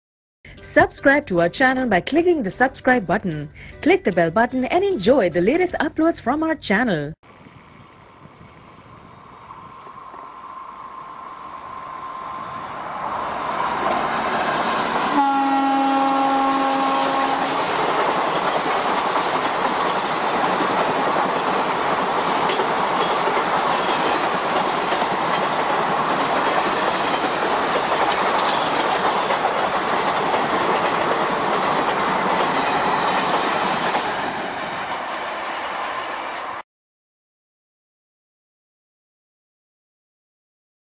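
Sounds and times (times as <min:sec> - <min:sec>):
train horn: 0:15.1 - 0:17.8
train wheels clattering over rail joints: 0:16.3 - 0:34.5.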